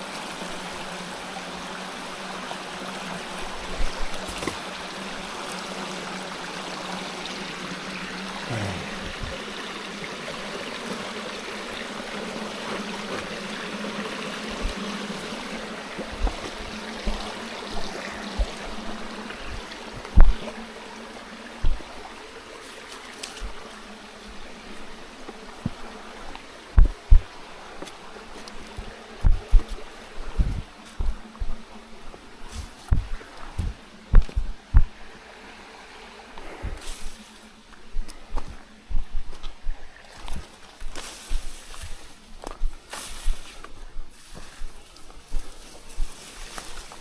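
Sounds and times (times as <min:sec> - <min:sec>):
stream flowing: 0:00.0 - 0:47.0.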